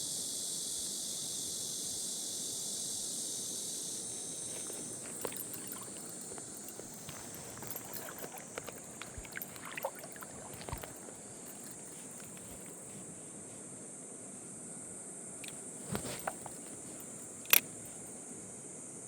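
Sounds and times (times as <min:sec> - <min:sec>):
high-pitched insect chorus: 0:00.0 - 0:19.0
wading through shallow water: 0:04.3 - 0:13.1, 0:15.4 - 0:18.1.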